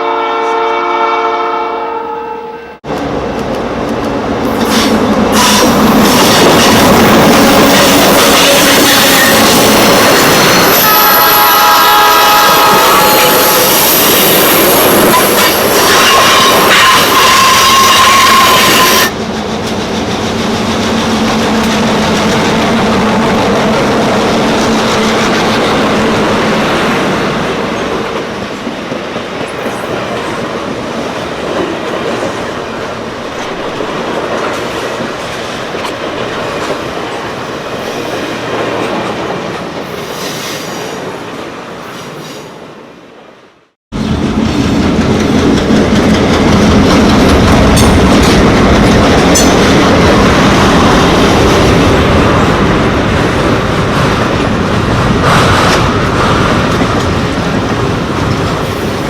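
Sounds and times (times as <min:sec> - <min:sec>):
train wheels clicking over rail joints: 0:44.0 - 0:52.2.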